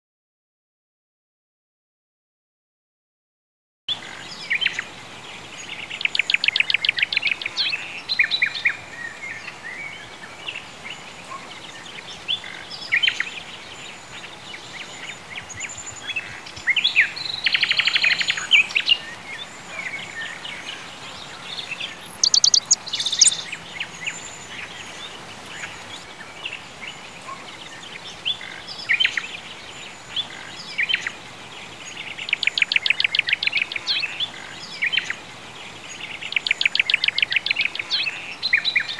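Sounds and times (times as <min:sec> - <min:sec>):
faint steady hiss: 0:03.9 - 0:38.9
songbirds singing trills: 0:03.9 - 0:38.9.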